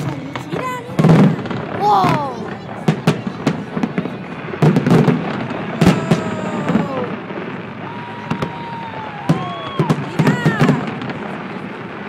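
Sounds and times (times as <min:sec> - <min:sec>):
fireworks bangs and crackling: 0:00.0 - 0:12.0
fireworks whistles falling in pitch: 0:04.8 - 0:11.2.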